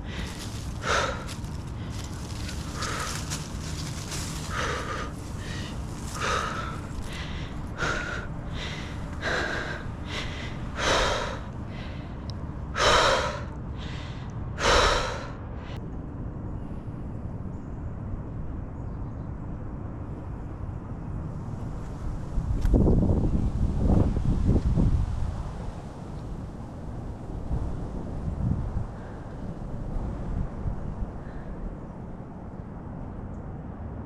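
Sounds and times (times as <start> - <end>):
person breathing hard: 0.0 - 15.8.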